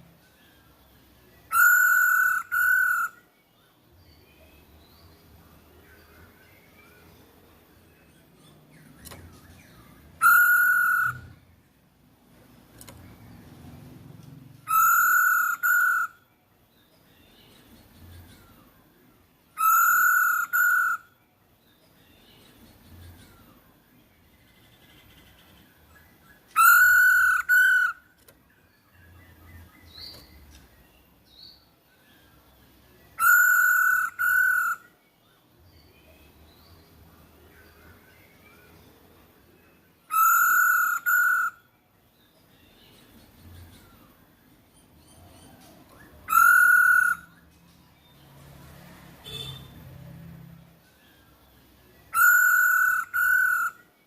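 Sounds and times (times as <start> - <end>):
faint bird chirps: 0.0 - 54.0
laughingthrush whistled calls: 1.5 - 3.2, 10.2 - 11.4, 14.7 - 16.2, 19.6 - 21.1, 26.4 - 28.0, 33.2 - 34.9, 40.1 - 41.7, 46.0 - 47.4, 52.1 - 53.9.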